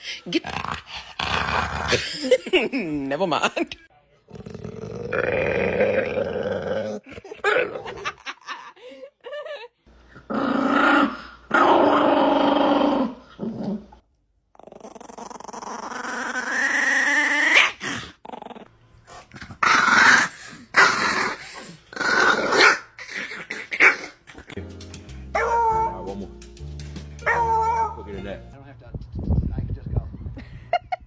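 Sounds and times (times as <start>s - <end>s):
dog growling and whining: 4.4s - 8.2s, 10.2s - 18.7s, 19.3s - 24.5s, 27.3s - 28.1s.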